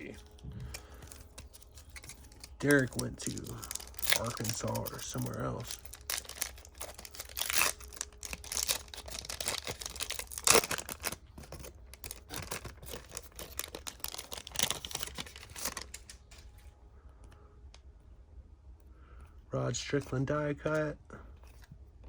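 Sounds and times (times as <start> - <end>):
foil wrapper tearing and crinkling: 0.0 - 16.5
cards being handled: 0.0 - 16.7.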